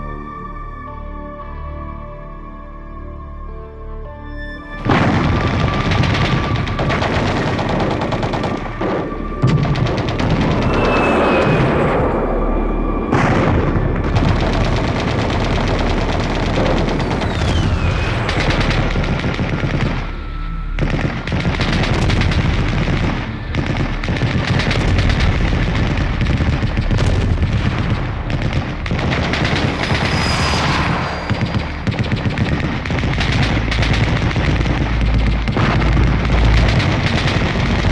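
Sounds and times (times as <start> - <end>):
automatic gunfire: 4.8 - 11.1, 13.2 - 20.2, 20.8 - 37.9
booms: 4.8 - 20.2, 20.8 - 37.9.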